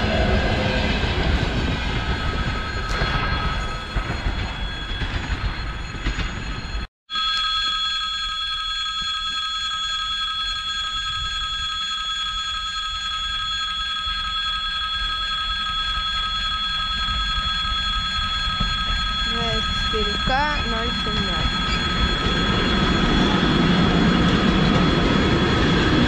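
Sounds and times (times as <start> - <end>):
approaching locomotive rumble: 0.0 - 6.5, 20.7 - 26.0
railway warning signal ringing: 2.3 - 26.0.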